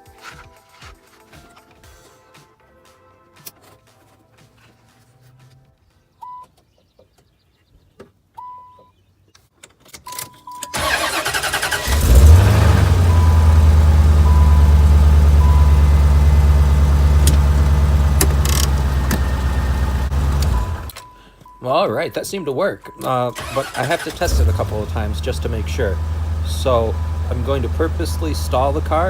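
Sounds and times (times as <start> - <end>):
starter motor cranking: 10.7 - 14.5, 17.0 - 21.0, 23.4 - 29.0
car engine idling: 10.8 - 21.0, 23.4 - 29.0.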